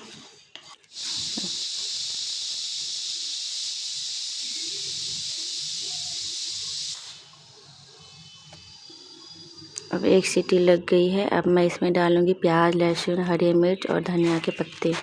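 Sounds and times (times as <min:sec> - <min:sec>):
pressure cooker whistle: 0:00.9 - 0:10.0.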